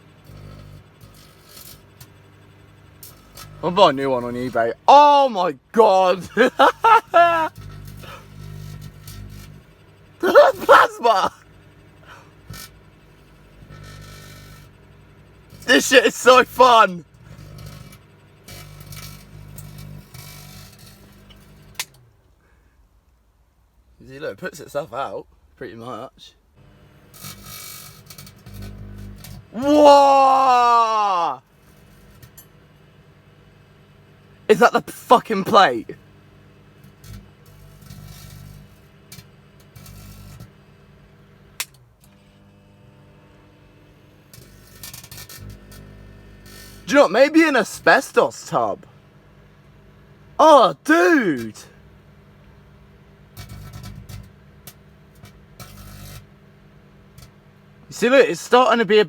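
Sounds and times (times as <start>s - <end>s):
microwave oven hum: 0.0s - 22.7s, 26.6s - 59.0s
electrical arcing crackles: 6.4s - 9.6s.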